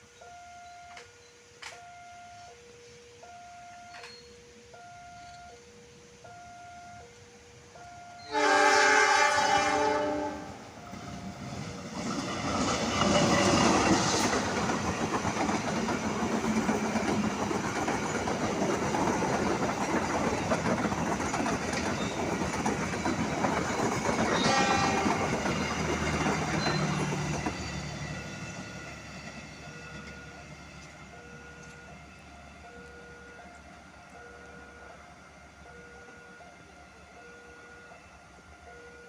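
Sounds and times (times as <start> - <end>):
train clickety-clack: 0.9 - 1.8, 3.7 - 4.2, 8.3 - 35.0.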